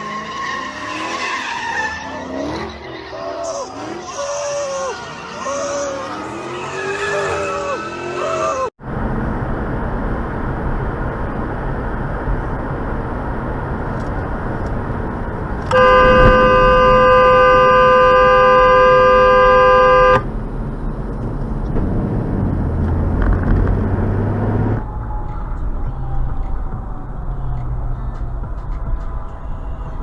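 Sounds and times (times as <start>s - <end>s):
road traffic noise: 0.0s - 30.0s
car horn blast: 15.7s - 20.3s.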